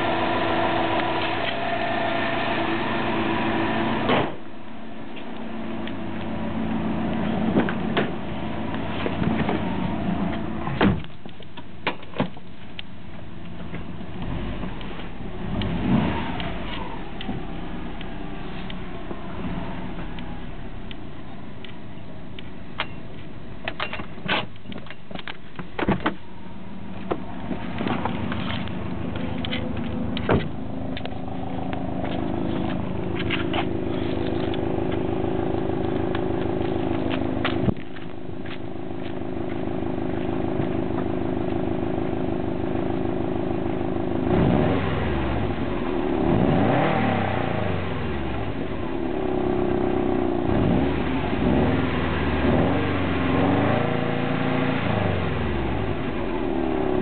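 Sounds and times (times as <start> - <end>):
car engine and exhaust running: 0.0 - 57.0.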